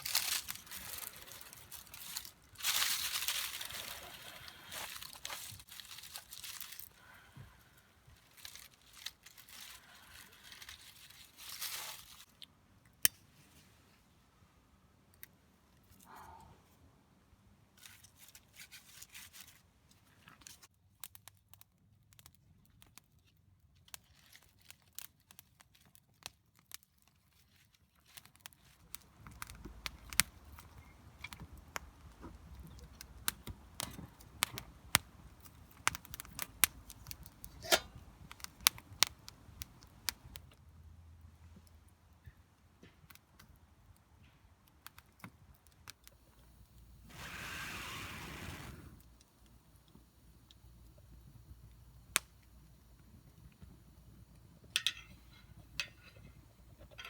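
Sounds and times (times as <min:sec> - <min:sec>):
tearing and crinkling: 0:00.0 - 0:07.3, 0:08.1 - 0:12.3, 0:17.8 - 0:20.7, 0:23.8 - 0:31.4.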